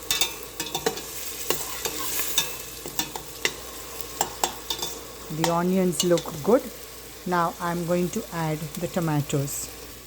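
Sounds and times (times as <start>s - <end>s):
spoon scraping a pan: 0.0s - 6.5s
onions sizzling in oil: 0.0s - 10.0s.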